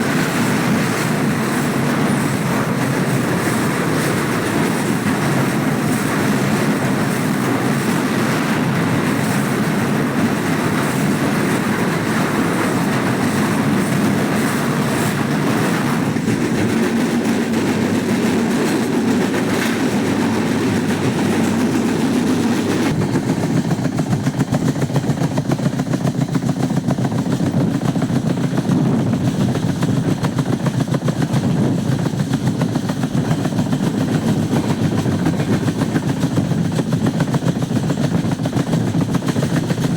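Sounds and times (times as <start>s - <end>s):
passenger train rumbling: 0.0s - 39.9s.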